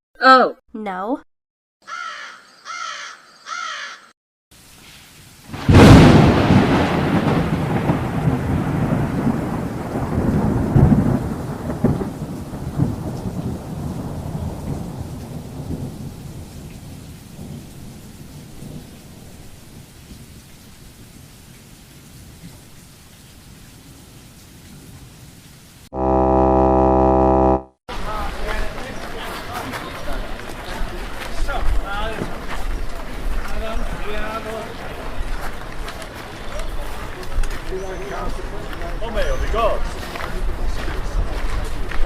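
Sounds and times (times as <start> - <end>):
faint hiss: 4.6 - 5.4
thunder cracking and rumbling: 5.5 - 18.0
low buzzing tone: 26.0 - 27.8.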